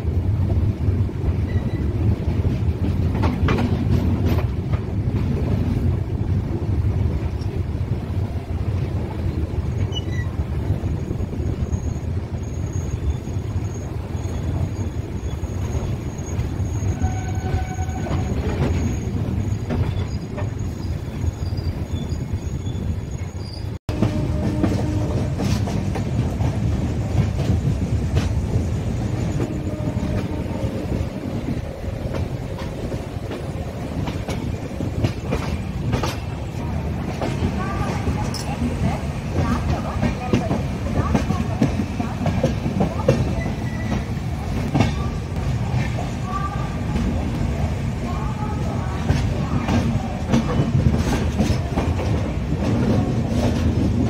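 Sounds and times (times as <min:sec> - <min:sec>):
train wheels rumbling on rail: 0:00.0 - 0:54.0
high wheel squeal: 0:09.8 - 0:10.4, 0:11.0 - 0:23.8.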